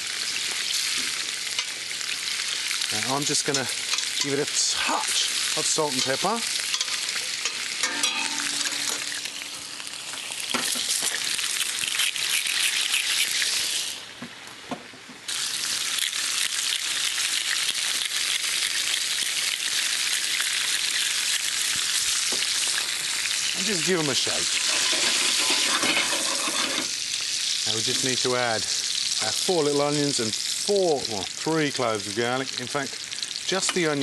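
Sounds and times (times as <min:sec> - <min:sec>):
vegetables sizzling in oil: 0:00.0 - 0:34.0.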